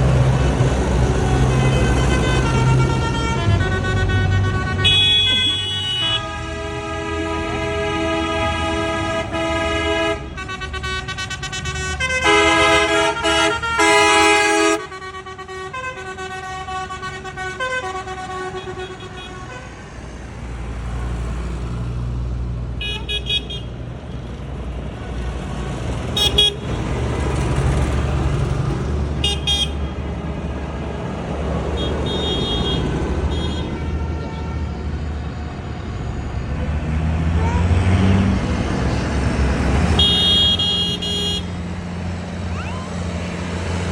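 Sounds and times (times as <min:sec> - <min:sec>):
truck engines passing: 0:00.0 - 0:43.9
truck horns long blasts: 0:00.1 - 0:19.9, 0:22.8 - 0:23.8, 0:26.0 - 0:27.6, 0:29.1 - 0:41.8
short high horn toots: 0:01.7 - 0:14.8.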